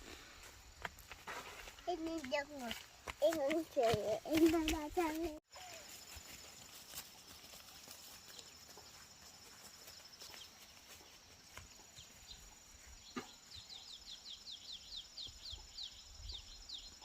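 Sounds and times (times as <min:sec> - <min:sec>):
bird chirping: 0:09.9 - 0:17.0.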